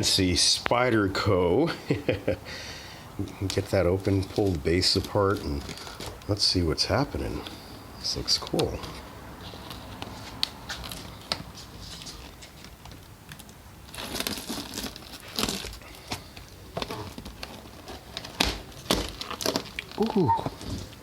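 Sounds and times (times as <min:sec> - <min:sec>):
packaging wrap crinkling and tearing: 0:03.2 - 0:06.5, 0:08.4 - 0:21.0.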